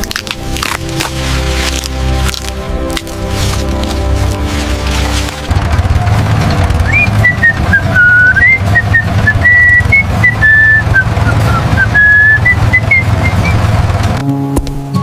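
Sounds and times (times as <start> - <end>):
low music beat: 0.0 - 10.4
whistled melody: 6.8 - 13.7.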